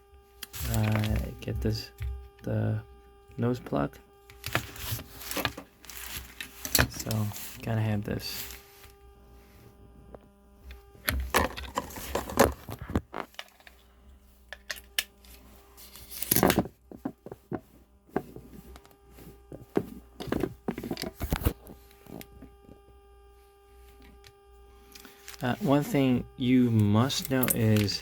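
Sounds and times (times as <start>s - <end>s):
faint steady hum: 0.0s - 28.0s
plastic adapter and packaging handling: 11.0s - 13.8s.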